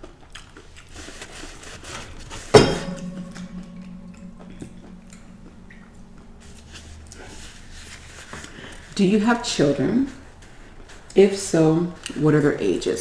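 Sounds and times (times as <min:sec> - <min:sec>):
faint steady hum: 0:02.6 - 0:08.0.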